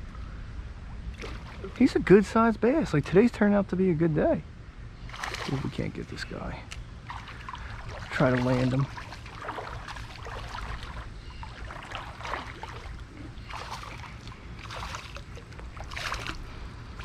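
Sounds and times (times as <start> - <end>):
water splashing and sloshing: 0.9 - 2.4, 5.0 - 17.0
running creek: 1.0 - 3.4, 5.0 - 17.0.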